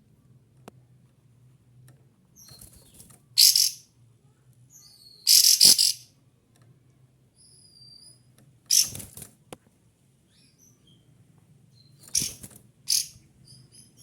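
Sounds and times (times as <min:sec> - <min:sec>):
faint bird calls and whistles: 0:02.4 - 0:03.9, 0:04.7 - 0:06.1, 0:07.4 - 0:09.0, 0:11.7 - 0:14.0
bulbul singing high chattering notes: 0:03.4 - 0:03.8, 0:05.3 - 0:06.1.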